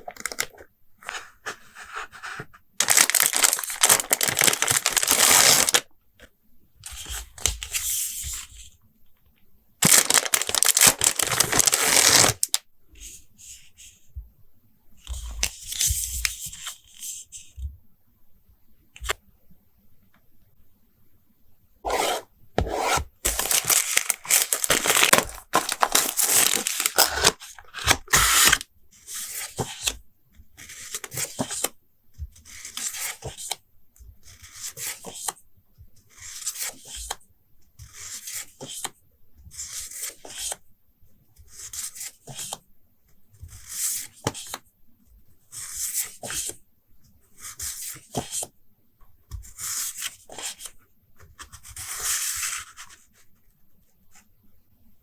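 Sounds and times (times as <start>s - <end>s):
paper and tape tearing: 2.8s - 5.8s, 9.8s - 12.5s, 21.9s - 28.6s.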